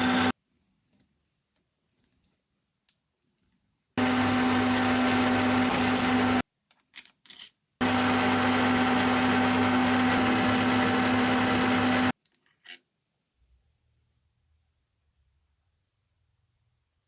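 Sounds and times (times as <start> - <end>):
electric power tool running: 0.0 - 0.3, 4.0 - 6.4, 7.8 - 12.1.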